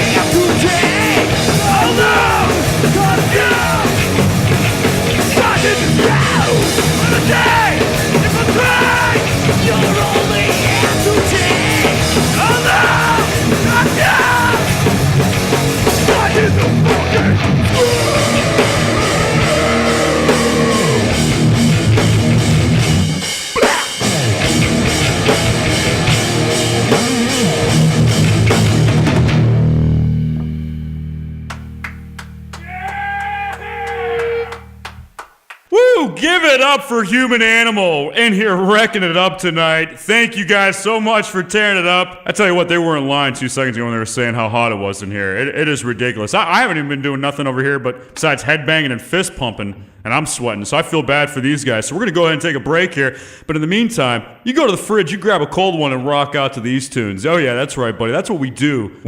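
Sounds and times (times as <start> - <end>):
shouted vocals: 0.0 - 4.2, 5.1 - 14.9, 16.0 - 21.4, 23.6 - 24.0, 32.5 - 34.8
punk band playing live: 0.0 - 30.7, 31.5 - 35.2.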